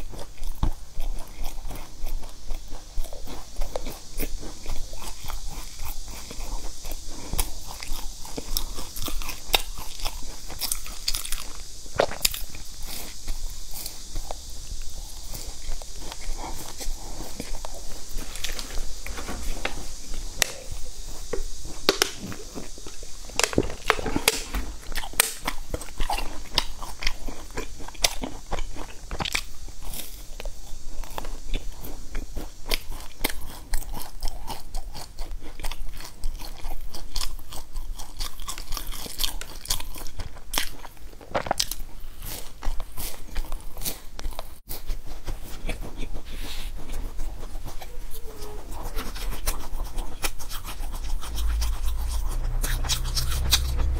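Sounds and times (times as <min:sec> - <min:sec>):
person crunching biscuits: 0:15.0 - 0:30.1, 0:32.6 - 0:51.6.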